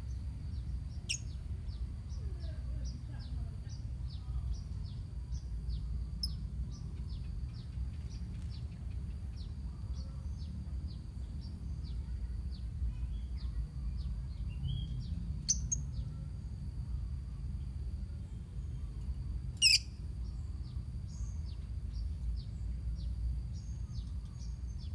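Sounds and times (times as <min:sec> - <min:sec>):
birds chirping: 0:19.6 - 0:24.9.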